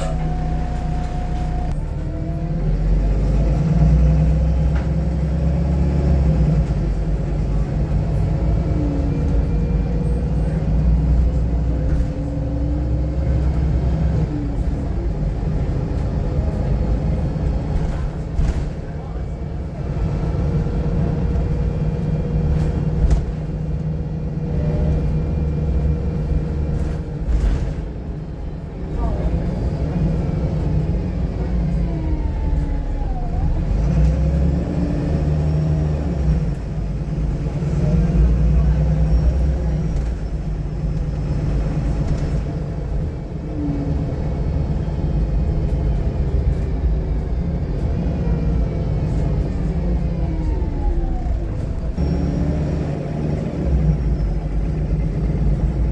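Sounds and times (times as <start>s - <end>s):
faint engine whine: 0.0s - 3.4s, 35.9s - 55.9s
bus diesel engine rumble: 0.0s - 55.9s.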